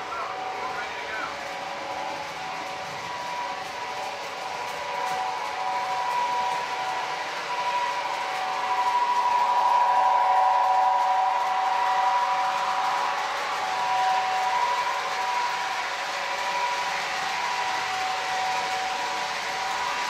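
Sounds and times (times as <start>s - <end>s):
model train electric whine: 0.0s - 20.0s
wheels rolling on track: 0.0s - 20.0s.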